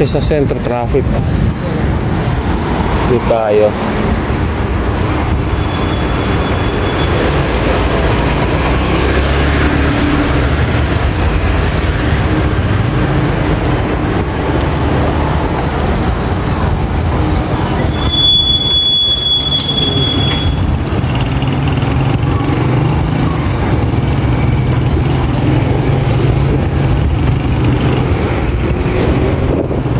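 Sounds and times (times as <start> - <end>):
vehicle rumble in traffic: 0.0 - 29.9
high thin squeal: 17.5 - 20.7.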